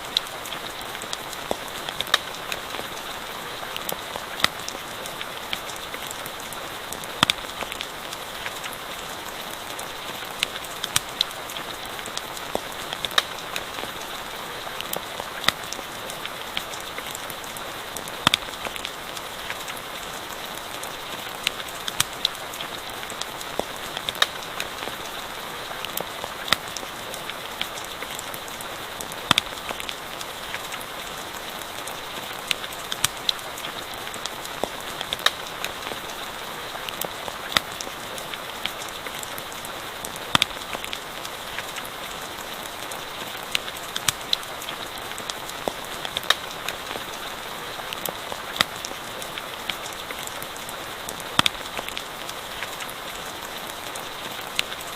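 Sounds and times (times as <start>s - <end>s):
campfire crackling and popping: 0.0s - 54.9s
steady rainfall: 0.0s - 54.9s.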